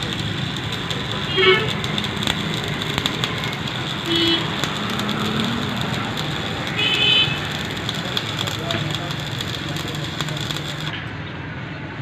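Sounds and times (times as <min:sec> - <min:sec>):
clicks: 0:00.0 - 0:11.2
road traffic noise: 0:00.0 - 0:12.0
high horn toot: 0:01.3 - 0:01.8, 0:04.0 - 0:04.7, 0:06.6 - 0:07.5.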